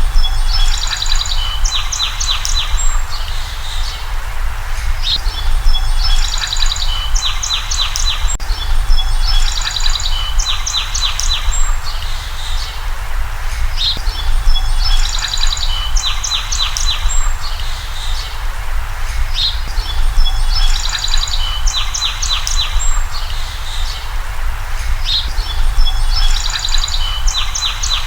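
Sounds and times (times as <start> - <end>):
birds chirping and trilling: 0.0 - 28.0
steady low rumble: 2.6 - 7.4, 8.2 - 10.6, 13.0 - 20.8.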